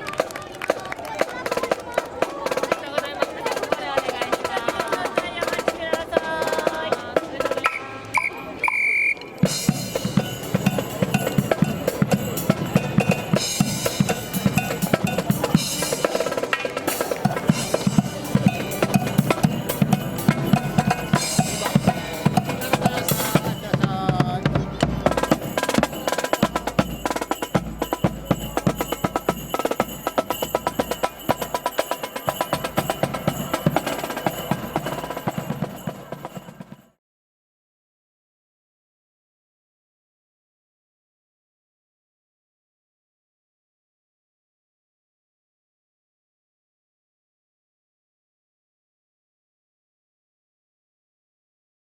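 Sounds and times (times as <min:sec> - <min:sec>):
marching snare and bass drums: 0:01.2 - 0:36.9.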